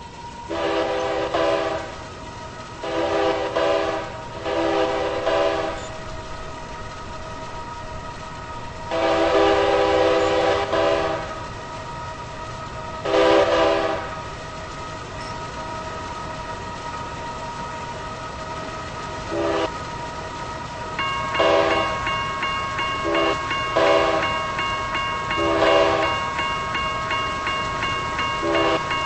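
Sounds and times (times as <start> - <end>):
train running: 0.0 - 29.0
train air horn blasts: 0.5 - 2.0, 2.8 - 5.9, 8.9 - 11.4, 13.0 - 14.2, 19.3 - 19.7, 21.4 - 22.0, 23.0 - 24.3, 25.4 - 26.2, 28.4 - 28.8.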